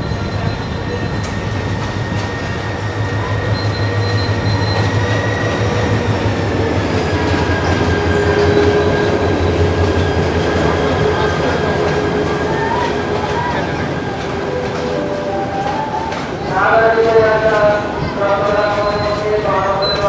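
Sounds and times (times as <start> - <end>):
wheel squeal: 0.0 - 6.3
train rolling slowly: 0.0 - 20.0.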